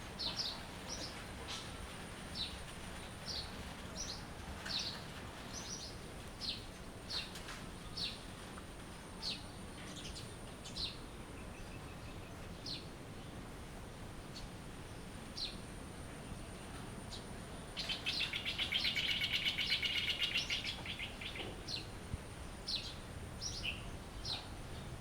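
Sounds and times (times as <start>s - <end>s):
outdoor background hiss: 0.0s - 25.0s
birds chirping: 14.3s - 25.0s.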